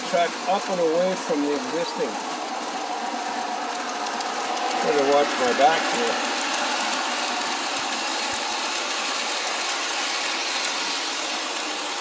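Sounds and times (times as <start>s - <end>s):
model trains whirring on track: 0.0s - 12.0s.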